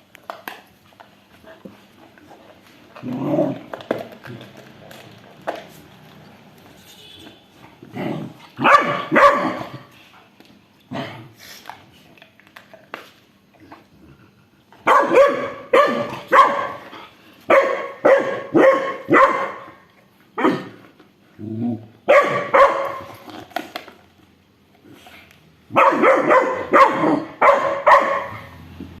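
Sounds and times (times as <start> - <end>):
dog barking: 8.6 - 9.9, 14.8 - 16.9, 17.5 - 19.8, 22.1 - 23.1, 25.7 - 28.6.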